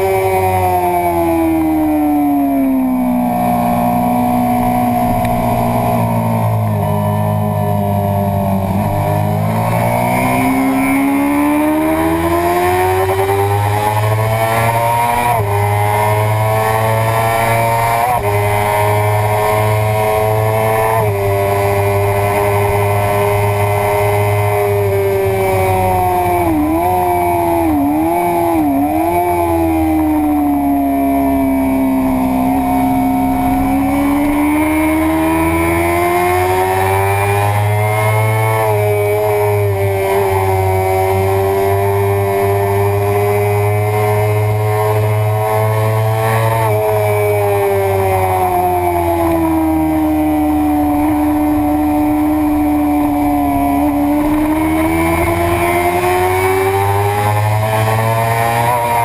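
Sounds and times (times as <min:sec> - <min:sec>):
motorcycle engine running hard: 0:00.0 - 0:59.0.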